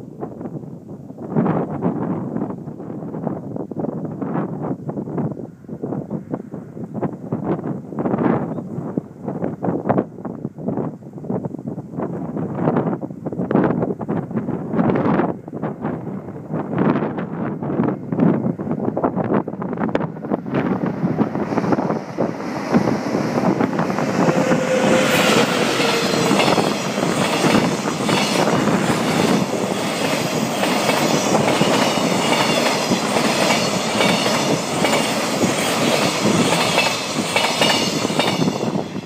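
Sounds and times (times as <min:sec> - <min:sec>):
falling whine: 0:19.6 - 0:34.1.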